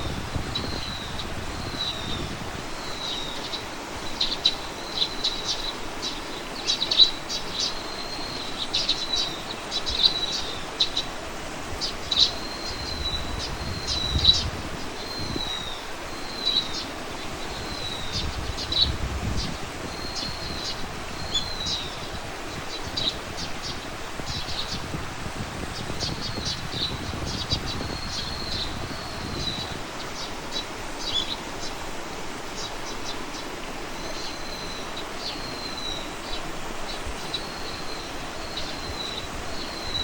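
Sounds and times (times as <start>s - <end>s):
wind rumble on microphone: 0.0s - 4.5s, 11.4s - 31.1s
small birds chirping: 0.0s - 40.0s.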